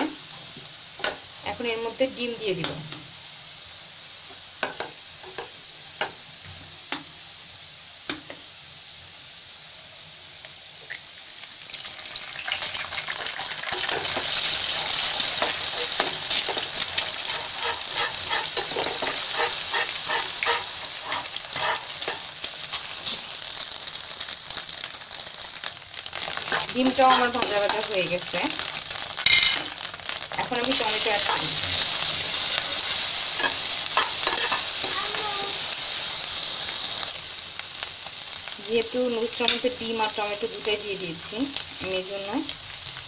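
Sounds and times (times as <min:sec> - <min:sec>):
food sizzling in a frying pan: 0:00.0 - 0:43.0
spatula scraping a pan: 0:13.7 - 0:23.2, 0:26.1 - 0:27.8, 0:30.8 - 0:35.0.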